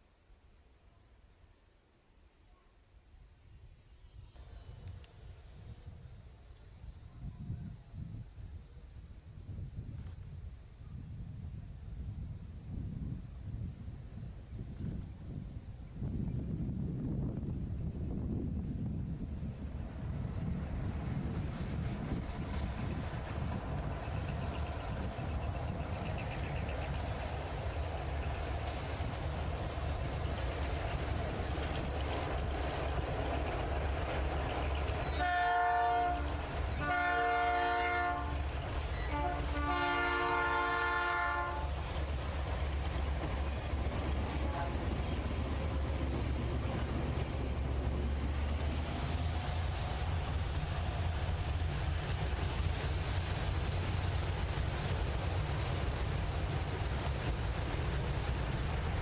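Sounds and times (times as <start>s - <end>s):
locomotive air horn blasts: 35.2s - 38.4s, 39.0s - 41.6s, 44.5s - 44.8s.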